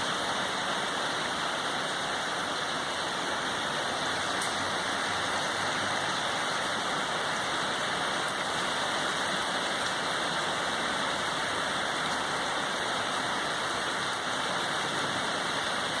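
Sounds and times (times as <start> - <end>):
steady rain hiss: 0.0 - 16.0
faint raindrop ticks: 4.4 - 4.6.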